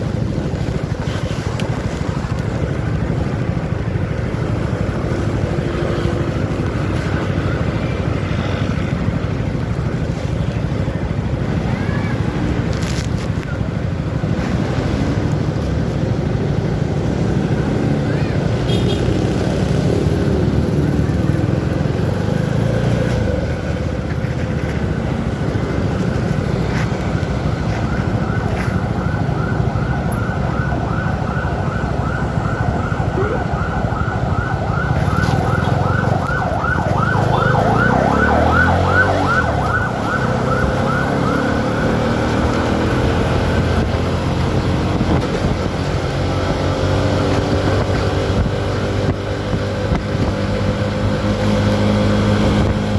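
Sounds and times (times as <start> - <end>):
siren yelping: 27.2 - 44.5
motorcycle engine revving: 37.0 - 52.9
wind noise: 42.7 - 52.9.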